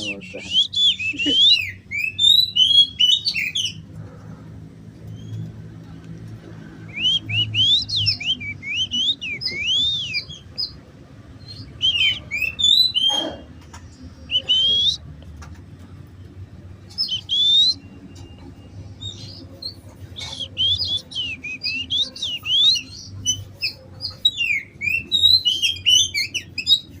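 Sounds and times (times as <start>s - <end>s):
songbird chirping and whistling: 0.0s - 3.8s, 6.9s - 10.8s, 11.4s - 13.4s, 14.2s - 15.1s, 16.9s - 27.0s.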